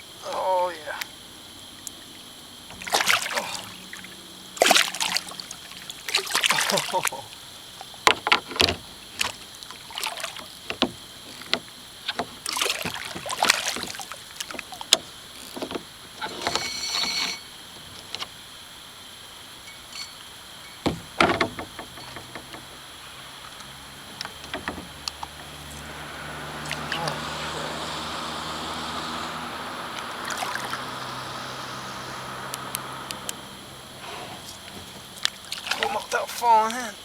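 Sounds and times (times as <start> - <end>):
water splashing: 0.0 - 37.0
knocks against kayak hull: 8.0 - 9.4, 20.8 - 22.8, 24.1 - 25.6
rasping scrape: 16.2 - 17.6.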